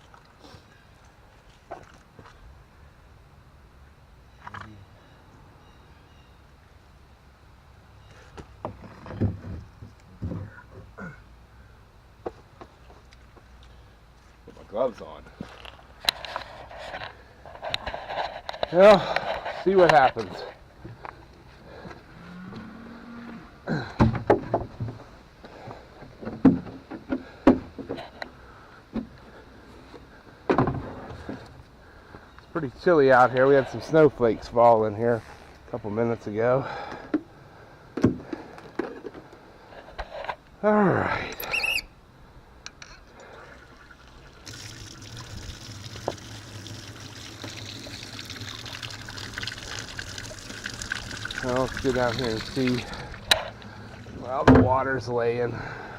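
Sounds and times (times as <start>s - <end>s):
irregular knocks and clunks: 8.4s - 11.0s, 23.9s - 28.3s, 30.5s - 31.6s, 38.0s - 39.4s, 54.4s - 54.8s
water pouring: 43.2s - 54.4s.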